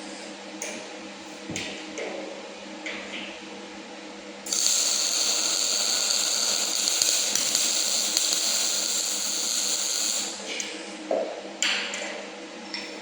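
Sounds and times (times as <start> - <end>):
welder arc crackling: 4.5 - 10.4.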